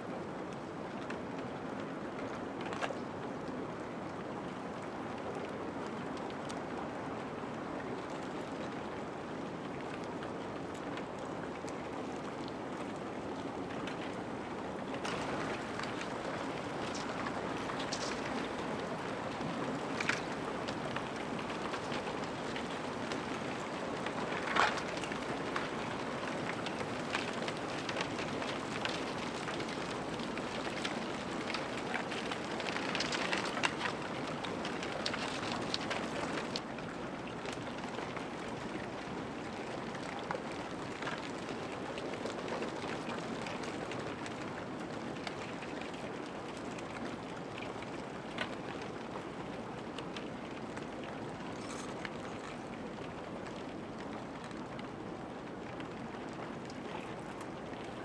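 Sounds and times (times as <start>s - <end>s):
ice crackling and tinkling: 15.1s - 25.6s, 51.6s - 52.6s
ice grinding: 51.6s - 52.6s.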